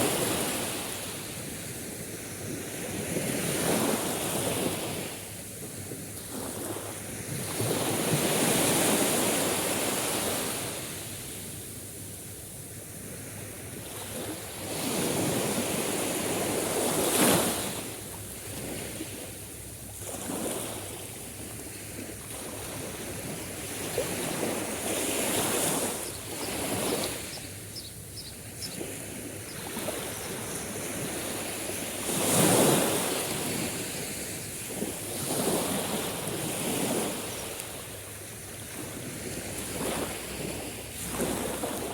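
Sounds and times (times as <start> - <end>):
sea waves breaking: 13.0 - 41.9.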